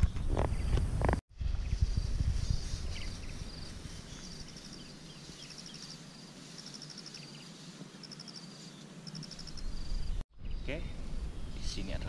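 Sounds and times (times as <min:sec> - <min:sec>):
insects chirping: 0:01.6 - 0:12.0.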